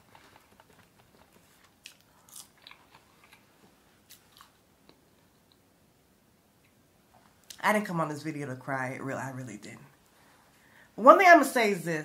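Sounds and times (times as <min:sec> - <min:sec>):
faint chewing and mouth clicks: 0:00.0 - 0:05.7.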